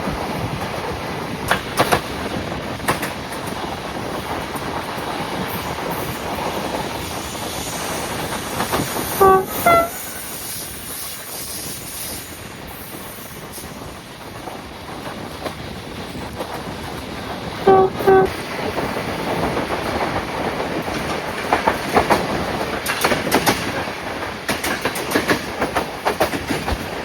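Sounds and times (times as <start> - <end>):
passenger train rolling: 0.0 - 27.0
locomotive horn blasts: 9.2 - 10.5, 17.7 - 18.4.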